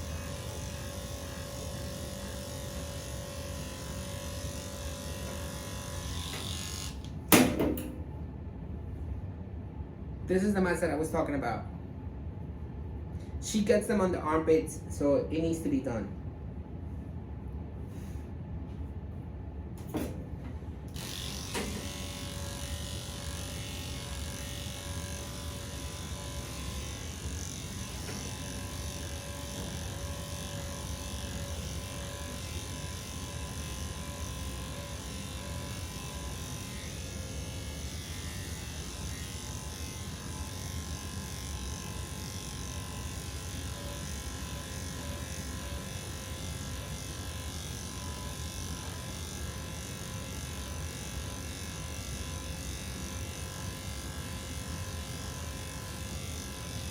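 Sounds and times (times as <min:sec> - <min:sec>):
electric pet clippers running: 0:00.0 - 0:08.0, 0:20.9 - 0:56.9.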